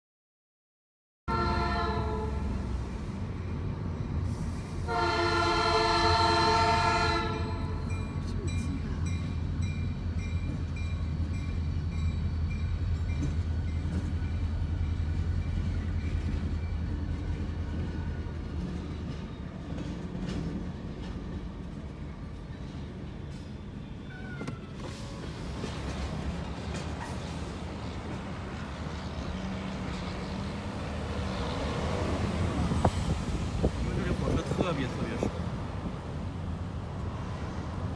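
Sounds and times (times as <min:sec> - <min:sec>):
locomotive air horn blasts: 0:01.3 - 0:02.8, 0:04.8 - 0:07.9.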